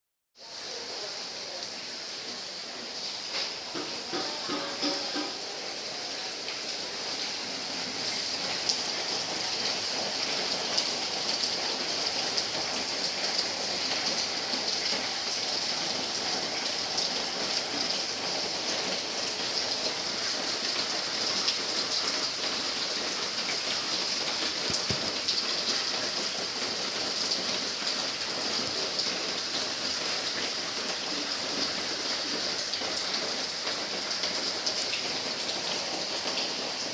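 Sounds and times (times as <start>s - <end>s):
rain falling: 0.4s - 36.9s
sharp rain taps: 0.7s - 36.9s.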